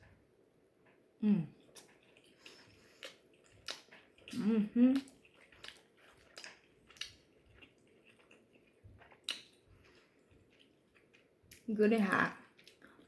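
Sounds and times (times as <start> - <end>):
chewing: 1.6 - 13.0
wet mouth clicks and smacks: 1.7 - 8.4, 9.0 - 9.6.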